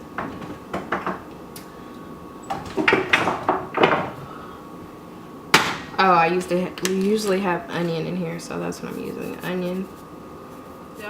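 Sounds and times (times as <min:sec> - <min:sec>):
containers knocking in a cupboard: 0:00.2 - 0:01.3, 0:02.5 - 0:04.2.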